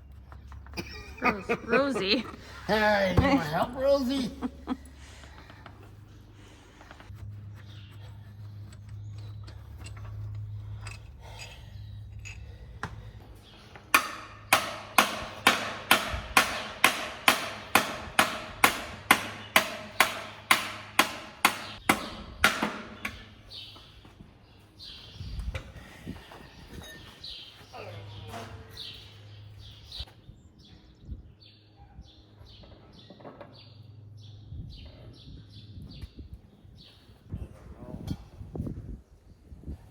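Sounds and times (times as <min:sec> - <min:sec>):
hammer striking metal: 0:13.9 - 0:23.2.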